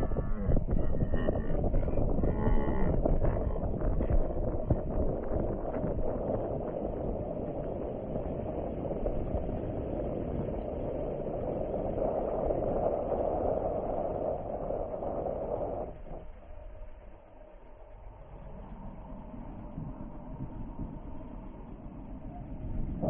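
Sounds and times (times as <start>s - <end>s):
rushing air: 3.8s - 16.4s.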